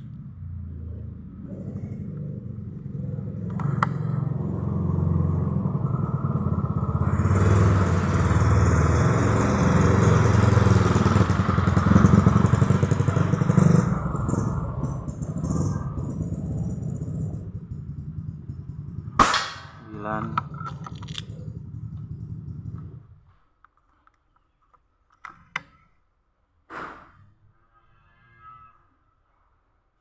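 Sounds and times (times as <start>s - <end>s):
vehicle engine passing by: 0.0s - 23.2s.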